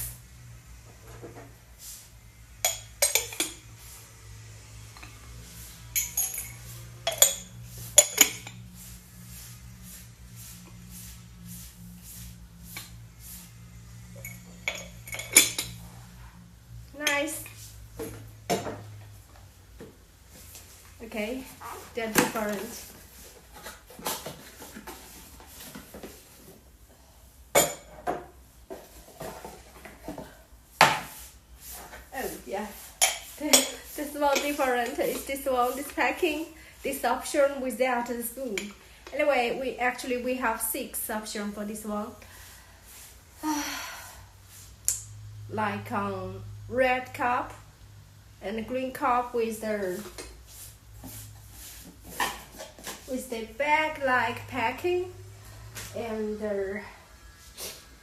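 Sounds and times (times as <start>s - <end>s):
mug and spoon clinking: 2.6s - 3.6s, 6.0s - 8.6s, 14.2s - 15.8s.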